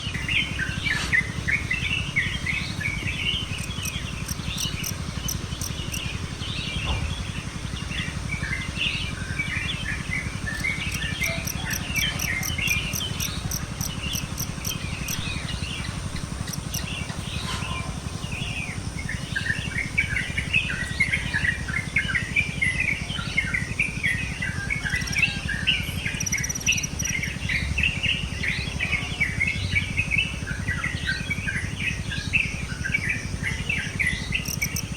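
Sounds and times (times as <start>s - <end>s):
birds chirping and chattering: 0.0s - 34.9s
high ticking: 0.2s - 17.2s, 34.4s - 34.9s.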